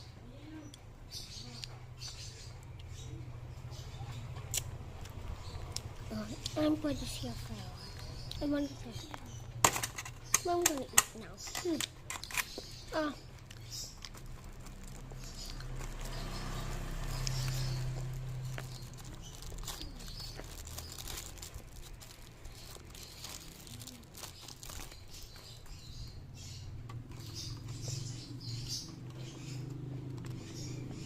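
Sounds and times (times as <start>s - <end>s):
child eating crunchy snack: 4.5s - 25.7s.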